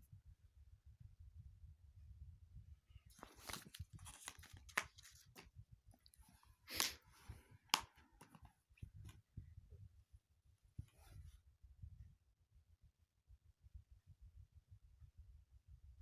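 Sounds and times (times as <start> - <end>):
paper rustling: 3.1 - 5.5.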